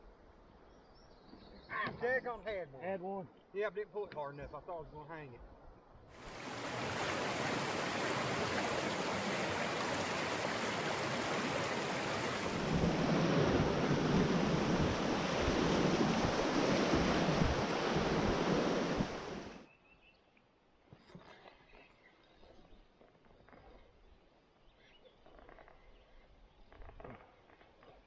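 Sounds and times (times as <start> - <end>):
river rushing over rapids: 6.2 - 13.1, 13.7 - 19.6.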